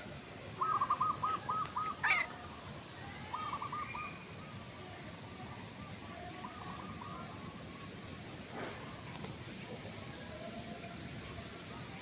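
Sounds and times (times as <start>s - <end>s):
bird calling: 0.6s - 2.4s.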